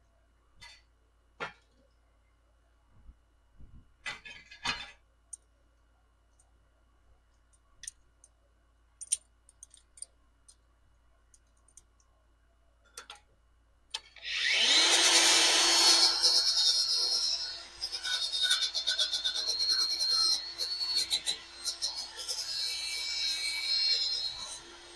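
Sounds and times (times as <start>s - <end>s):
power tool grinding metal: 14.2s - 24.9s.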